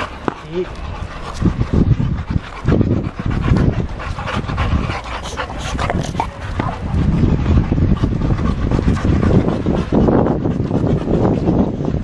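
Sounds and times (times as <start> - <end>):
dogs whimpering: 0.0 - 7.1
wind rumble on microphone: 0.0 - 12.0.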